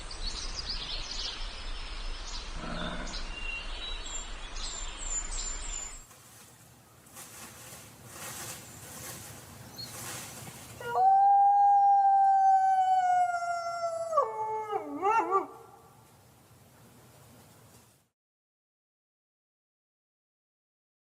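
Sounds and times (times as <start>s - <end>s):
wolf howling: 10.8s - 15.8s.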